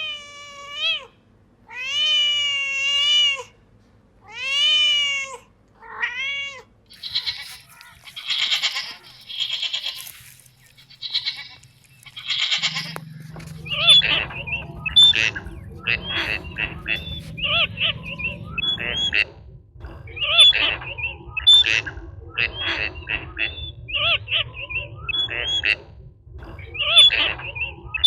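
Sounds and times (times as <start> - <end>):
cat meowing: 1.7 - 3.5, 4.2 - 10.0, 10.9 - 18.2
harsh hissy animal calls: 6.9 - 19.2.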